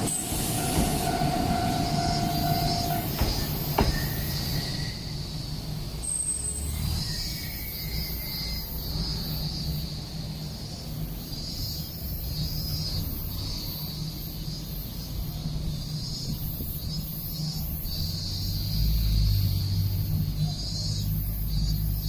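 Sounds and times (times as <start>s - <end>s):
train humming: 0.0s - 6.1s.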